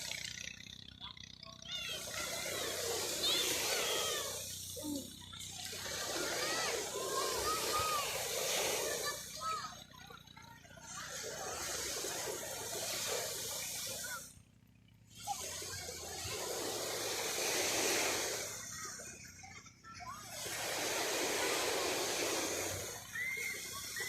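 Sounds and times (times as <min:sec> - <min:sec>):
surf washing onto beach: 0:01.9 - 0:09.7, 0:11.2 - 0:14.3, 0:15.5 - 0:18.9, 0:20.3 - 0:24.0.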